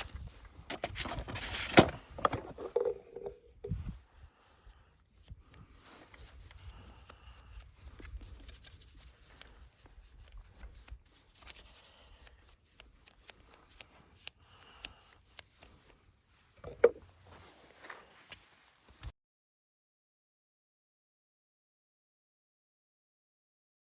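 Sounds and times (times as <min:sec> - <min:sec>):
scraping and clicking handling sounds: 0:00.0 - 0:03.8.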